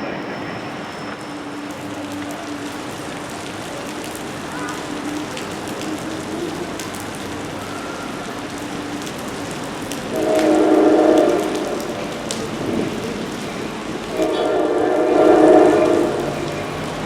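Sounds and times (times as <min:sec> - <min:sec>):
steady rain falling: 0:00.0 - 0:17.0
train horn: 0:10.1 - 0:12.2, 0:14.0 - 0:16.8.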